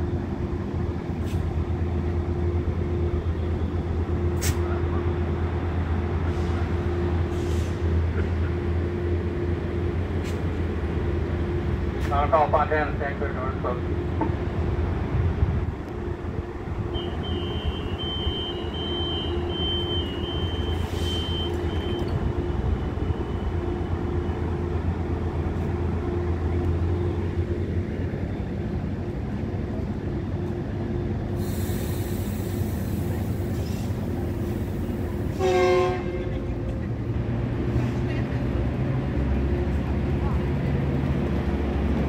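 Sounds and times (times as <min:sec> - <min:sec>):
diesel train engine rumbling: 0:00.0 - 0:42.0
train horn toot: 0:16.9 - 0:22.1, 0:35.3 - 0:36.4
air hiss: 0:31.4 - 0:34.0.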